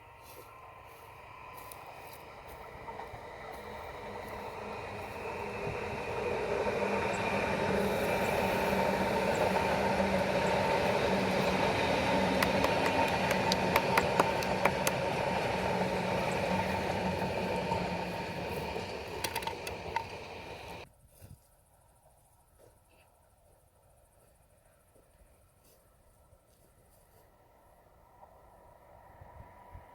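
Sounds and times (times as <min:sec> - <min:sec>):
electric train passing: 0:00.0 - 0:20.9, 0:27.4 - 0:29.9
sharp clicks: 0:18.2 - 0:20.8.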